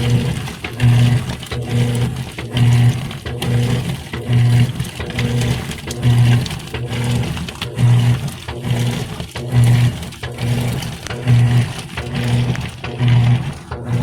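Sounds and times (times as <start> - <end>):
washing machine motor humming: 0.0 - 14.0
water sloshing: 0.0 - 14.0.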